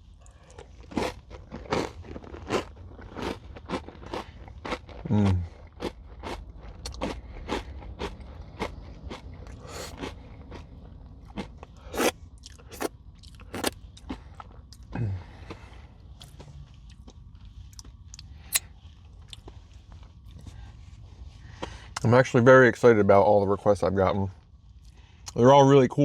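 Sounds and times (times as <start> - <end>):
crunching and chewing: 0.0 - 20.6.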